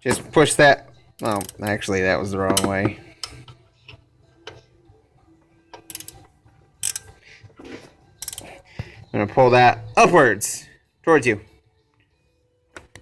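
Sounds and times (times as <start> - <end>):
metallic clicks of socket ratchet: 1.2 - 1.8, 5.8 - 6.2, 6.8 - 7.2, 8.2 - 8.5.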